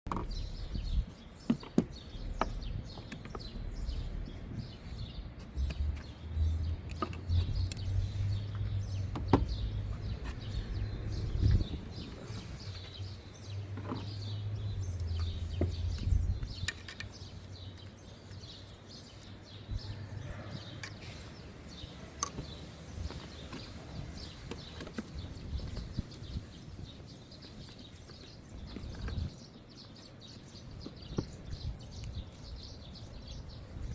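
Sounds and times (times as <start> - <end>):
birds chirping: 0.1 - 33.9
sharp clicks and knocks: 6.8 - 7.9.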